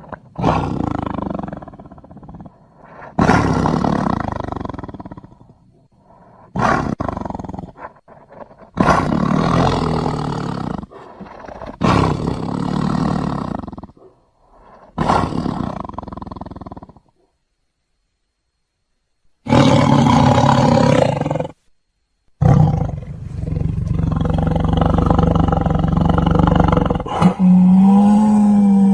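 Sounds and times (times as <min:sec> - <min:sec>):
cartoon animal roaring: 0:22.4 - 0:28.9.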